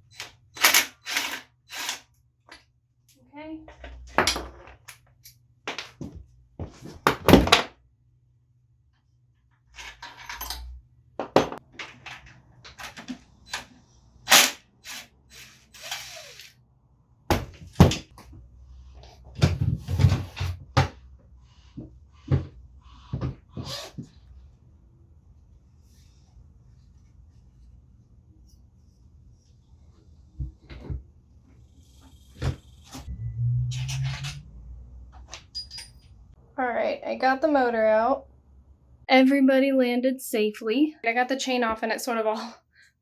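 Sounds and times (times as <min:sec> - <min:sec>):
tools and metal parts clunking: 0:03.7 - 0:06.2, 0:09.8 - 0:13.7, 0:35.2 - 0:36.1.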